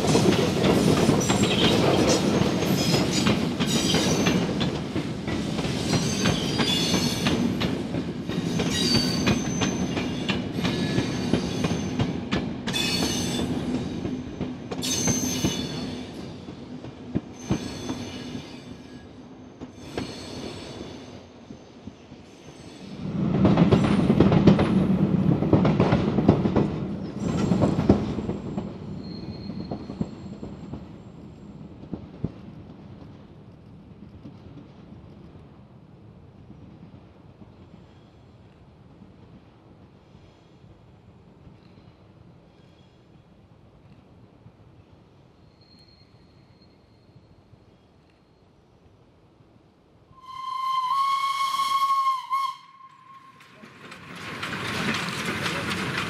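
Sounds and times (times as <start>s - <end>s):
high train squeals: 0.7s - 4.7s, 5.4s - 14.1s, 14.8s - 16.4s, 17.3s - 24.2s, 27.0s - 30.8s, 45.4s - 48.5s, 50.2s - 56.0s
train wheels clacking over joints: 52.9s - 56.0s.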